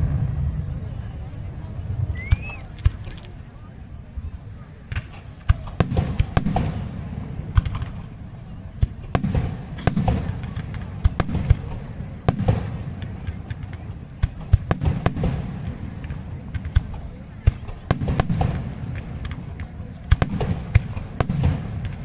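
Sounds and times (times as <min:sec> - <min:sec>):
rumbling echoes: 0:00.0 - 0:03.1
fireworks bangs and cracks: 0:00.0 - 0:03.6, 0:04.6 - 0:22.0.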